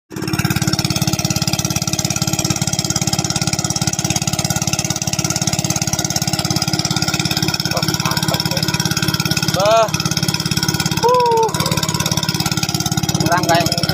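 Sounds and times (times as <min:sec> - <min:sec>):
small engine running: 0:00.1 - 0:13.9.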